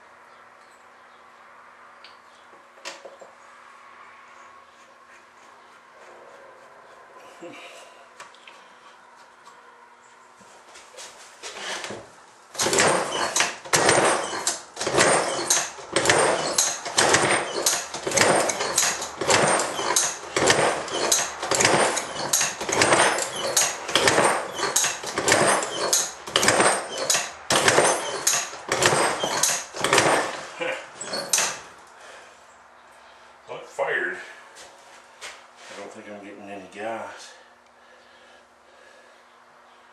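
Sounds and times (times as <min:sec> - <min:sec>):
engine popping: 0:12.6 - 0:30.4
small engine cranking: 0:12.6 - 0:31.7.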